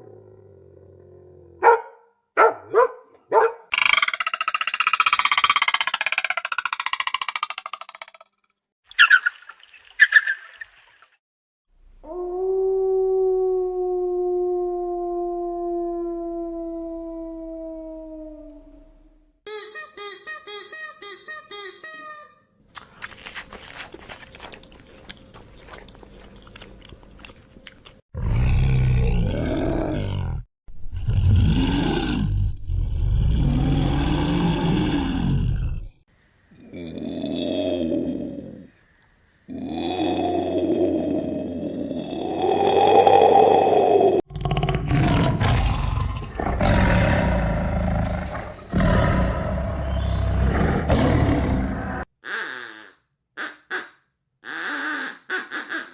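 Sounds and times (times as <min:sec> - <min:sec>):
large animal roaring: 0:00.0 - 0:01.6, 0:28.2 - 0:35.9, 0:36.6 - 0:38.7, 0:39.5 - 0:52.1.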